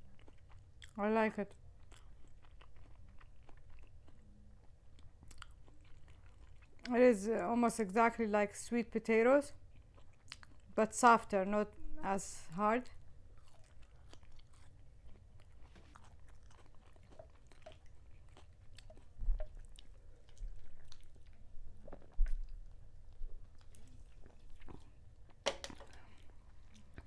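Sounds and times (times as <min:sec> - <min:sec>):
person chewing with wet clicks: 0:00.0 - 0:07.0, 0:09.5 - 0:10.8, 0:12.9 - 0:27.0.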